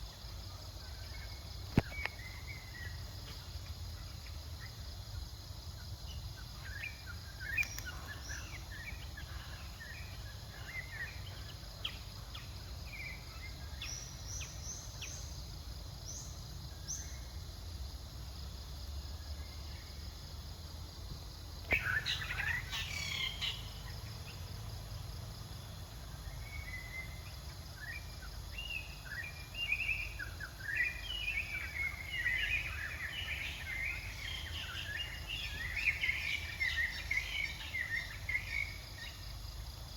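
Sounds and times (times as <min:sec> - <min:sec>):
high insect hum: 0:00.0 - 0:39.9.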